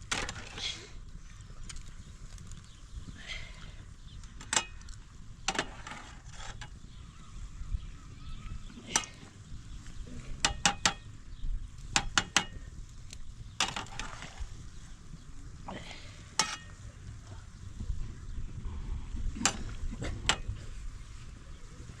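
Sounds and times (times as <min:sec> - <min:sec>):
low background rumble: 0:00.0 - 0:22.0
sharp clicks and knocks: 0:11.9 - 0:12.6.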